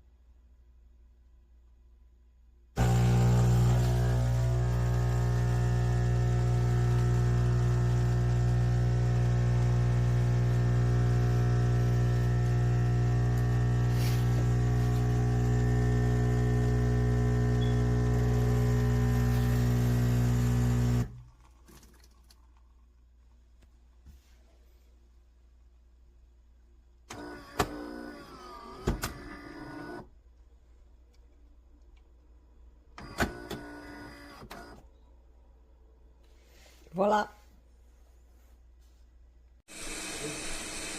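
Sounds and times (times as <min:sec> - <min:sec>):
espresso machine pump buzzing: 0:02.8 - 0:21.2, 0:39.7 - 0:40.9.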